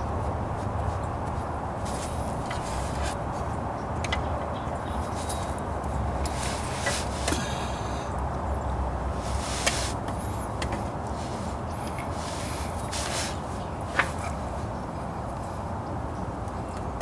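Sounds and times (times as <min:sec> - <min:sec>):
hands and tools clicking: 0:00.7 - 0:03.4.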